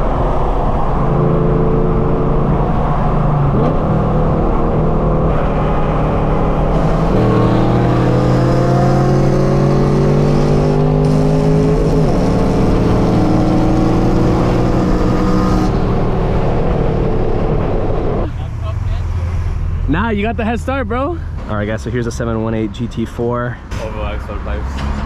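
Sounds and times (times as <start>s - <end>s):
car exhaust accelerating: 0.0s - 25.0s.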